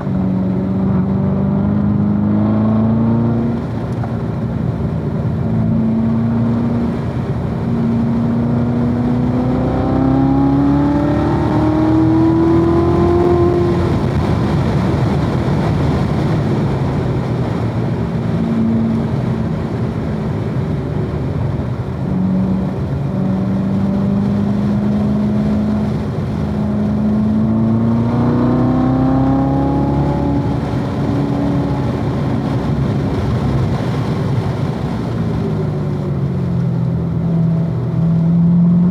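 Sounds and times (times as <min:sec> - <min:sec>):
car engine revving under acceleration: 0:00.0 - 0:38.9
tyre and wind noise: 0:00.0 - 0:38.9.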